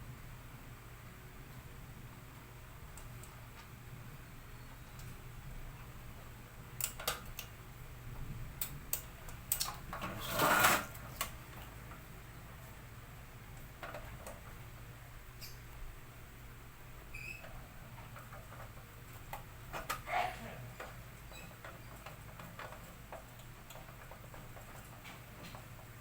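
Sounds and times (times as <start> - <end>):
small hard parts clicking: 6.8 - 7.6, 8.6 - 12.0, 17.2 - 26.0
scraping rustle: 10.0 - 11.1.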